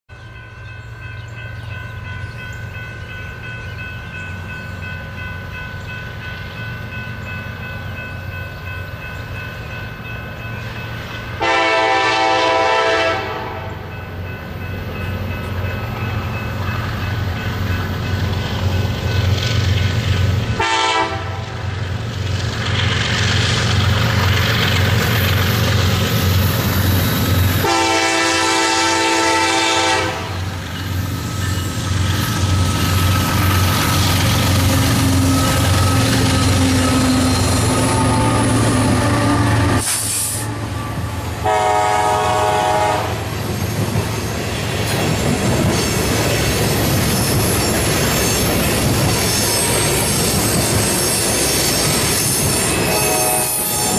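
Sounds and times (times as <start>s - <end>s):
diesel locomotive engine rumble: 0.1s - 53.9s
train cars rolling: 0.2s - 53.9s
train horn blasts: 11.4s - 14.0s, 20.6s - 21.7s, 27.6s - 30.6s, 34.9s - 43.3s, 52.8s - 53.9s
train wheels squealing: 30.5s - 41.4s, 43.4s - 53.9s.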